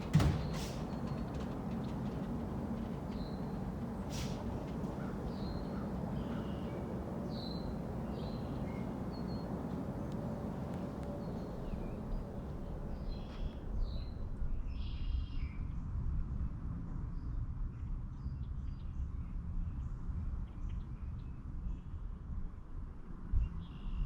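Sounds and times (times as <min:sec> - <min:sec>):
songbirds chirping: 0:00.0 - 0:14.4
steady low rumble: 0:00.0 - 0:14.9.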